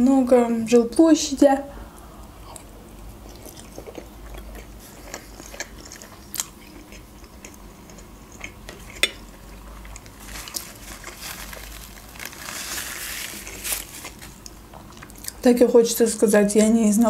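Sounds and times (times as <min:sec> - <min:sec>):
chewing with wet mouth clicks: 0:02.4 - 0:11.2
paper napkin rustling: 0:10.2 - 0:14.4.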